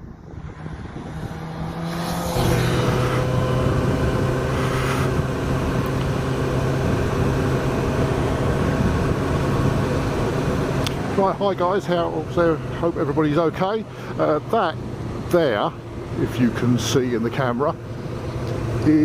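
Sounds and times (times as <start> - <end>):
motorcycle engine running: 0.0 - 12.9.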